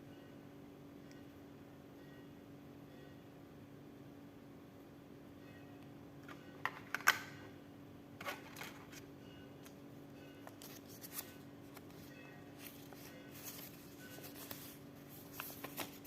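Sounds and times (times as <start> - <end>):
faint steady hum: 0.0 - 16.0
packaging rustling: 10.5 - 16.0.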